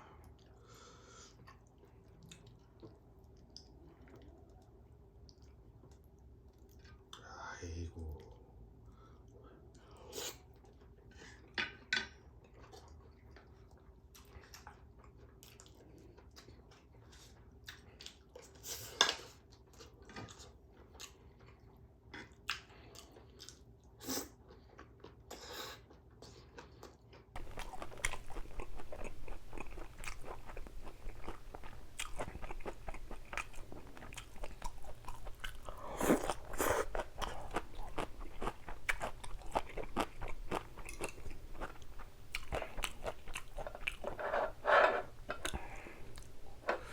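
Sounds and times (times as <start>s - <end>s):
person chewing crunchy food: 19.3s - 46.9s.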